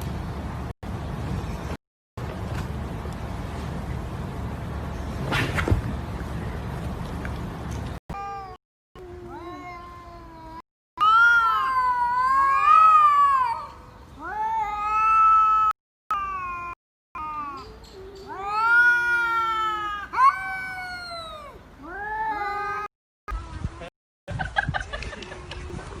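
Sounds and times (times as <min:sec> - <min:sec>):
cat yowling: 0:11.0 - 0:22.9.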